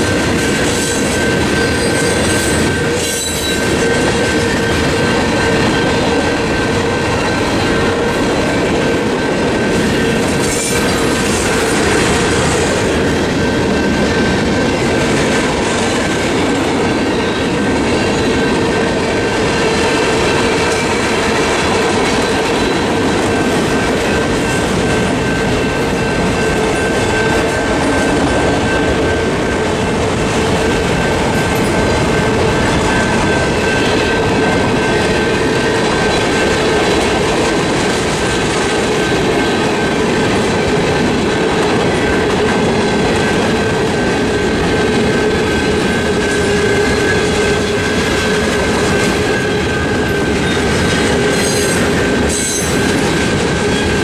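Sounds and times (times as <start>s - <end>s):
crossing bells ringing: 0.0s - 54.0s
train wheels clattering: 0.0s - 54.0s
wheels squealing: 0.4s - 12.9s.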